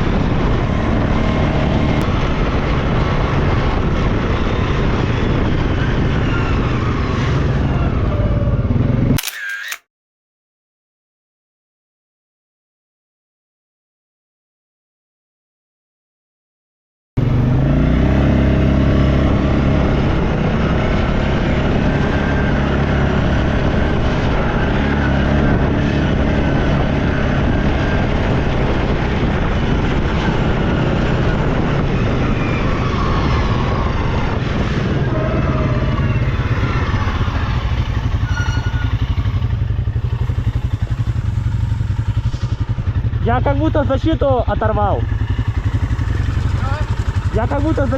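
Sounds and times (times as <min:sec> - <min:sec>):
quad bike engine under throttle: 0:17.2 - 0:47.9.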